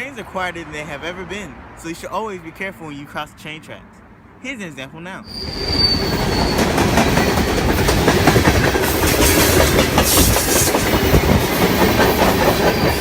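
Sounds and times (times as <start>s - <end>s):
train rumbling past: 5.3s - 13.0s
wheels clattering over rails: 5.5s - 13.0s.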